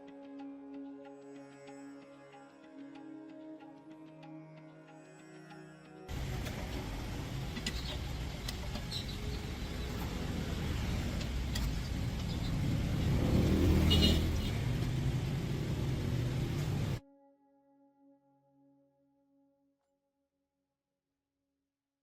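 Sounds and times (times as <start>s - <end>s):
truck engine rumbling: 6.1s - 17.0s.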